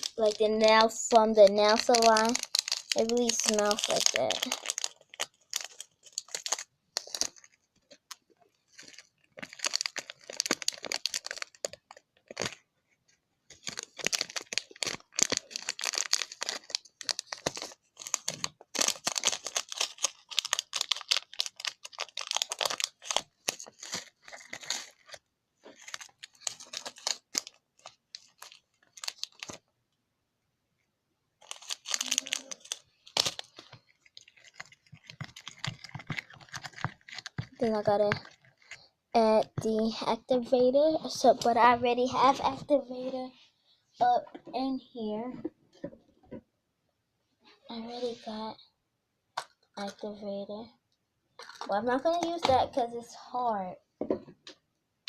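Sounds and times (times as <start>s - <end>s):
sticky glue stirred in plastic: 0.0s - 12.6s, 13.5s - 29.6s, 31.4s - 40.0s, 51.4s - 52.8s.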